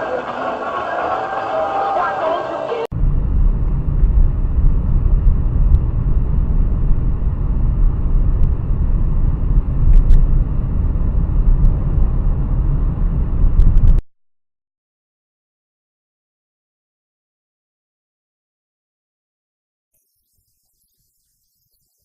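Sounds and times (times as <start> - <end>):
vehicle engine rumble and road noise: 2.8 - 14.0.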